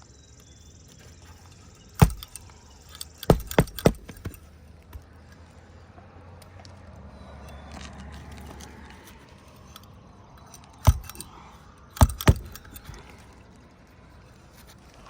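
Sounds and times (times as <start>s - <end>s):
hatchet striking nails: 2.0s - 5.1s, 10.8s - 11.4s, 12.0s - 13.1s.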